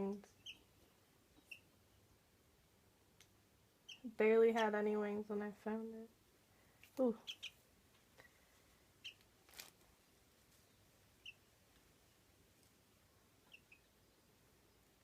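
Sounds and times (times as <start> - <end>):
bird chick cheeping: 1.4 - 1.7, 7.2 - 7.6, 9.0 - 9.2, 11.2 - 11.5, 13.4 - 14.3.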